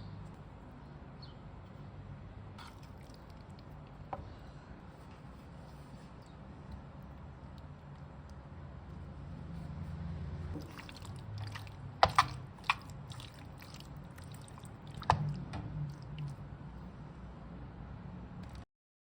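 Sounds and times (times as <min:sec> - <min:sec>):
wet mixing in a bowl: 0:02.6 - 0:04.1, 0:10.5 - 0:16.8.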